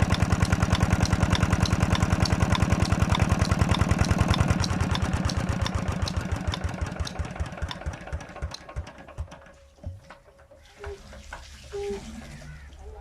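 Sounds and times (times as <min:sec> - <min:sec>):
diesel engine shutting down: 0:00.0 - 0:09.5.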